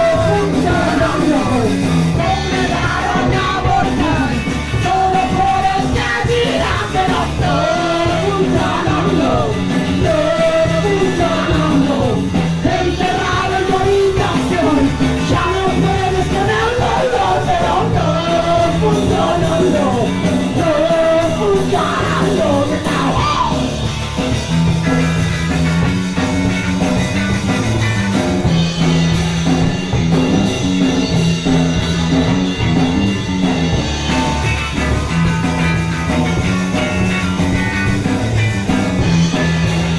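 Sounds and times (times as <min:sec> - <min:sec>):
singer's vocals: 0:00.0 - 0:23.8
punk band playing live: 0:00.0 - 0:39.9.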